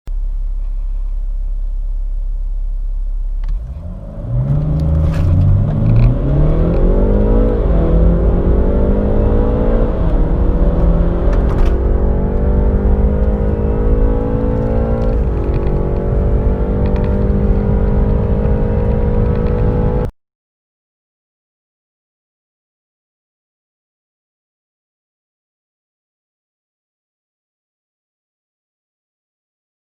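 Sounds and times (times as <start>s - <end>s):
car engine idling and accelerating: 0.1s - 20.1s.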